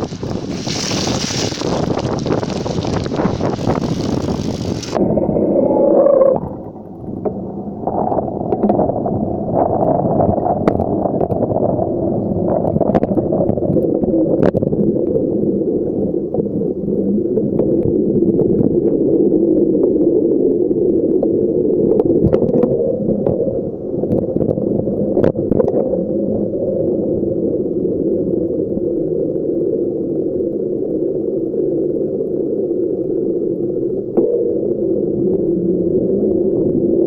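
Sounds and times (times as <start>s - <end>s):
bicycle tyre rumble: 0.0s - 7.0s
wind on microphone: 0.0s - 14.9s.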